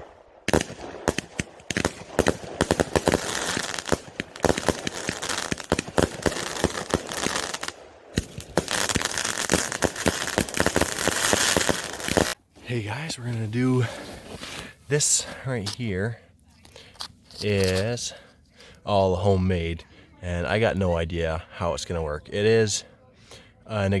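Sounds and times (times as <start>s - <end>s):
fireworks bangs and pops: 0.4s - 15.9s
fireworks crackling: 0.5s - 16.2s, 16.9s - 18.2s.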